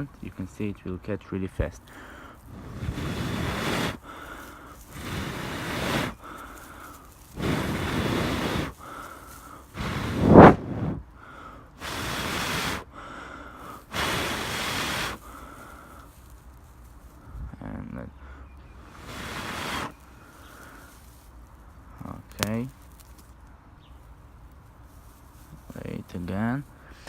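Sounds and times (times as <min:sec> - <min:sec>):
person blowing breaths: 0:01.8 - 0:16.4, 0:18.2 - 0:21.1.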